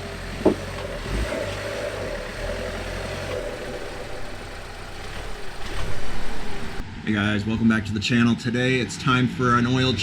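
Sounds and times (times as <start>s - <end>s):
car engine running: 0.0s - 6.8s
dull thump: 0.4s - 0.8s.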